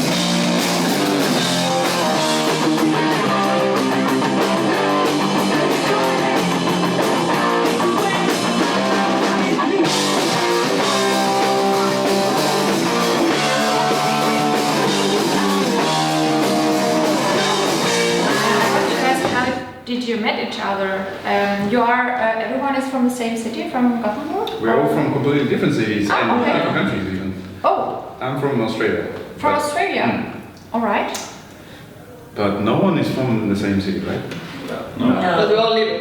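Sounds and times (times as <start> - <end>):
heavy metal band playing: 0.0 - 19.6.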